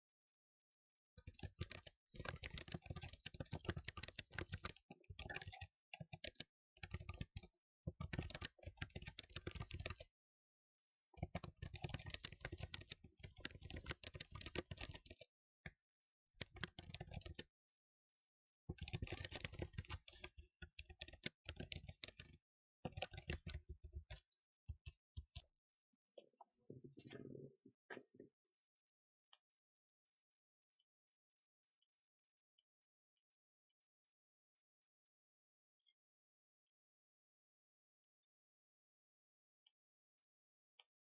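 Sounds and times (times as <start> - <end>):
computer keyboard typing: 1.2 - 10.1, 11.2 - 15.2, 16.4 - 17.5, 18.7 - 24.2.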